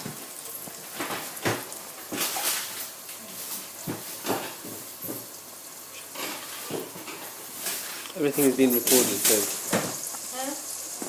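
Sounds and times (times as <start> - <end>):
food sizzling in a pan: 0.0 - 11.0
spoon scraping a pan: 5.9 - 8.7.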